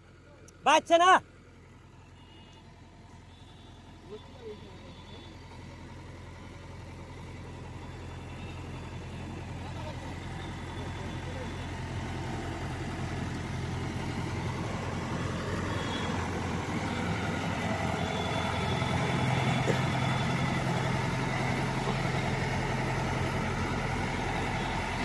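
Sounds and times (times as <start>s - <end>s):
combine harvester engine droning: 0.0s - 25.0s
threshing machinery noise: 7.1s - 25.0s.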